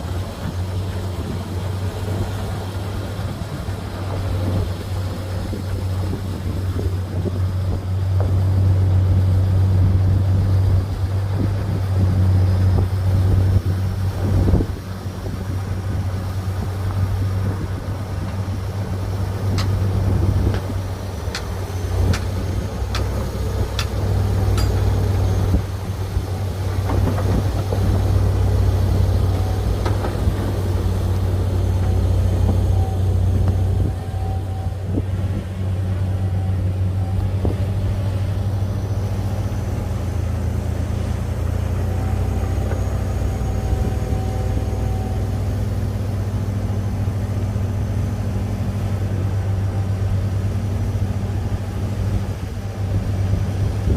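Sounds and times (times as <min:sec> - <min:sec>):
bulldozer diesel engine droning: 0:00.0 - 0:53.9
sharp metallic clanks: 0:23.7 - 0:25.0.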